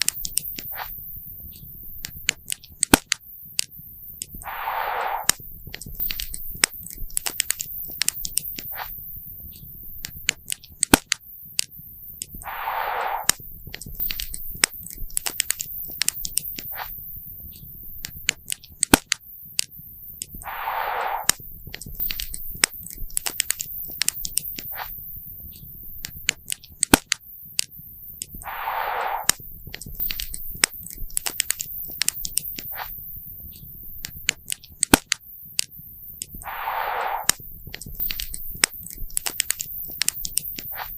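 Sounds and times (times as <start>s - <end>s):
short rushing noise: 4.4s - 5.4s, 12.4s - 13.4s, 20.4s - 21.4s, 28.4s - 29.4s, 36.4s - 37.4s.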